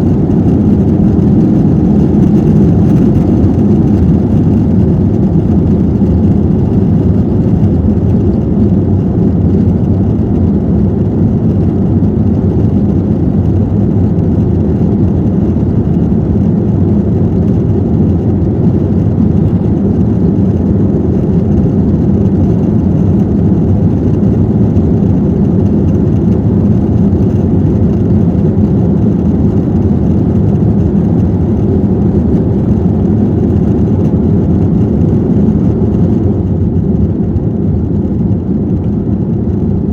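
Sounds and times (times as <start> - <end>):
rushing air: 0.0 - 14.4
jet engines droning: 0.0 - 39.9.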